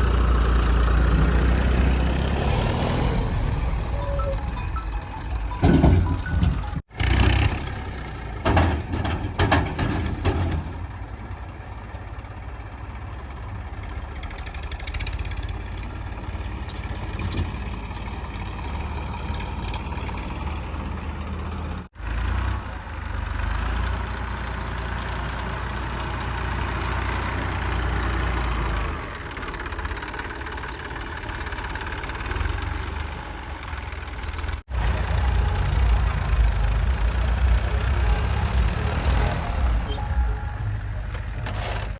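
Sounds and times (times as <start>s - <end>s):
diesel engine running: 0.0s - 41.9s
metal knocks and clanks: 3.4s - 11.2s, 16.3s - 19.0s.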